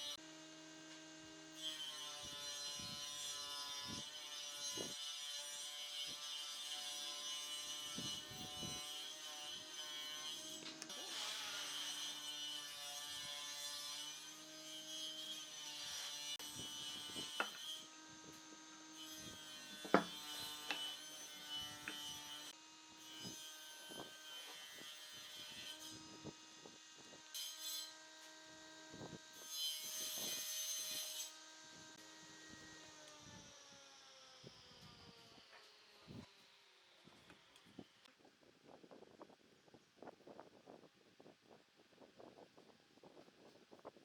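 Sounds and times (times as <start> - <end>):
tool scraping wood: 7.9 - 18.4, 19.0 - 26.1
knocks and taps on wood: 19.9 - 20.1.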